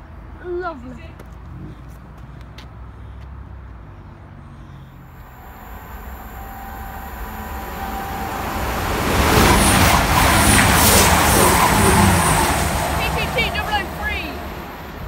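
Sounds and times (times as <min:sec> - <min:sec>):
passenger train passing: 0:05.0 - 0:15.0.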